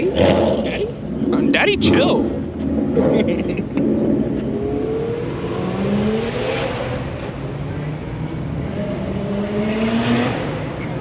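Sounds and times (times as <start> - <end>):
car engine accelerating: 0.0 - 11.0
rumble of running engines: 0.0 - 11.0.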